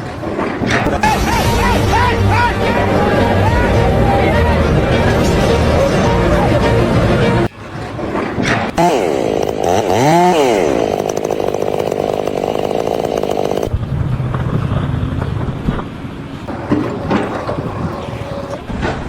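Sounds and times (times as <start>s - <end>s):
rough low hum: 0.0s - 18.7s
small engine revving: 8.4s - 13.8s, 16.4s - 18.7s
knocks: 15.4s - 18.6s.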